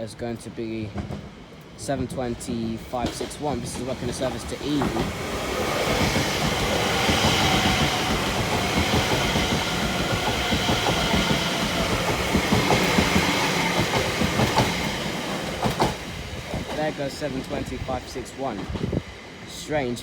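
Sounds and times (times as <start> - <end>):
train wheels running over track: 0.1 - 20.0.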